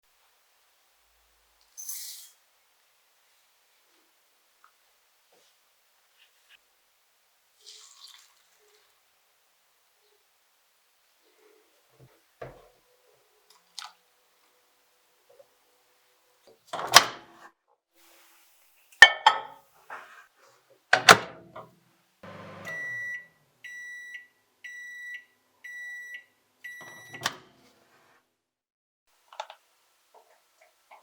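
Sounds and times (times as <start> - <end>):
microwave door clunks: 21.0 - 21.6
long electronic beeps: 22.3 - 26.1
microwave door click opening: 26.8 - 27.5.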